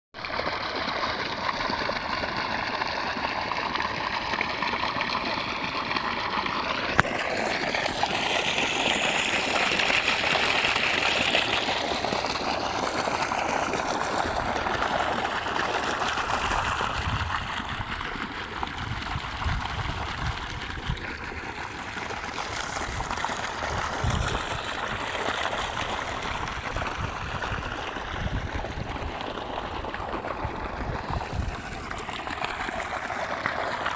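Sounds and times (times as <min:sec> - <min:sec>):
water flowing: 0:00.2 - 0:33.9.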